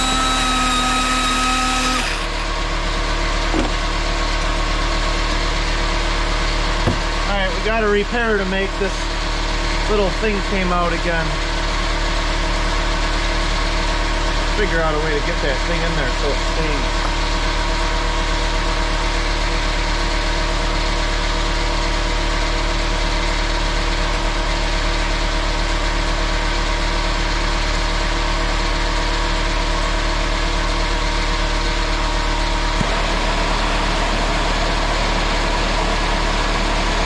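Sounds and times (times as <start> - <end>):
pneumatic angle grinder running: 0.0 - 3.9, 32.0 - 37.0.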